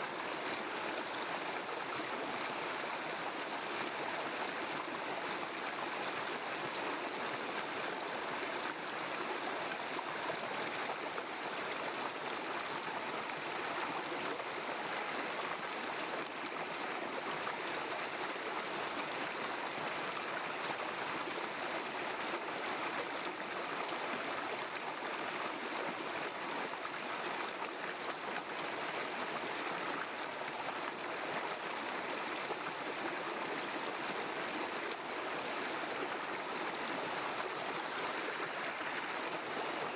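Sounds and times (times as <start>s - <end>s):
river water rushing: 32.2s - 39.9s.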